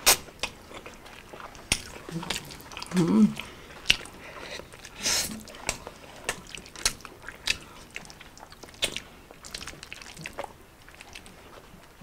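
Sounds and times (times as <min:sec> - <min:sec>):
people chewing food: 0:00.0 - 0:12.0
lip smacks and clicks: 0:01.4 - 0:02.9, 0:03.8 - 0:04.1, 0:05.6 - 0:11.3.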